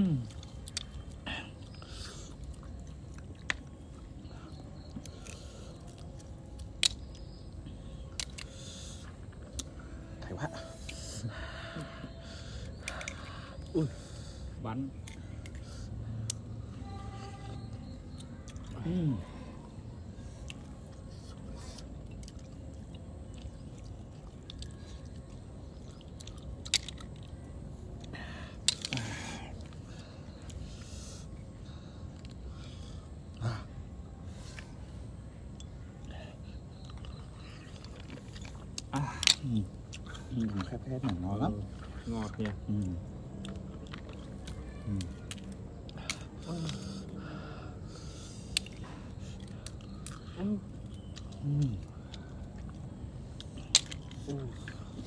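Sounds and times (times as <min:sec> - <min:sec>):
person chewing with sharp clicks: 0:00.0 - 0:07.5, 0:08.1 - 0:09.8, 0:20.4 - 0:30.6, 0:48.2 - 0:55.0.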